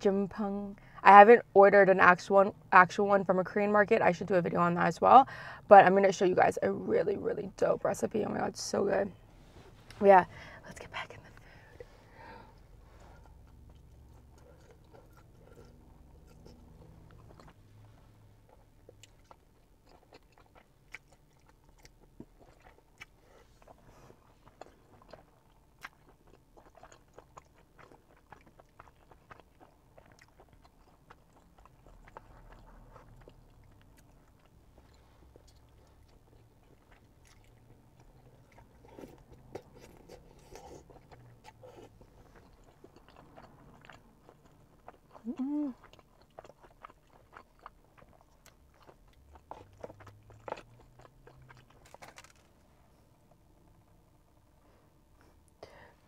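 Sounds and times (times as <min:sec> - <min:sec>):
chewing and mouth smacks: 0:13.0 - 0:54.5.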